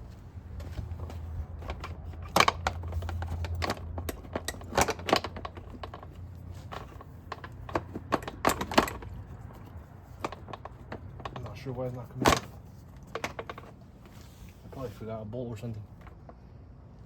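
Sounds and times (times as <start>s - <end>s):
low steady hum: 0.0s - 17.0s
plastic and metal clicks and knocks: 0.6s - 13.8s.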